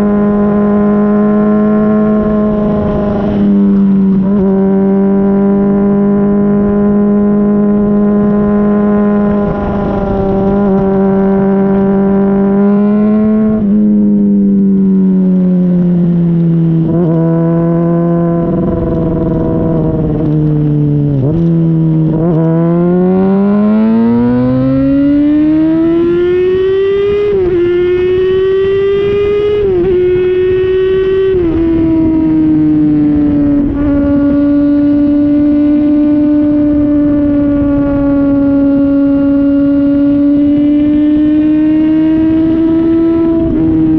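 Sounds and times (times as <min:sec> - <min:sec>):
motorcycle engine accelerating: 0:00.0 - 0:43.9
wind rumble on microphone: 0:00.0 - 0:43.9.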